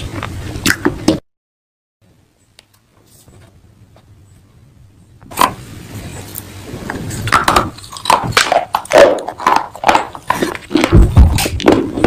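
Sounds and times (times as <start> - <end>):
crunching and chewing: 7.1 - 12.0.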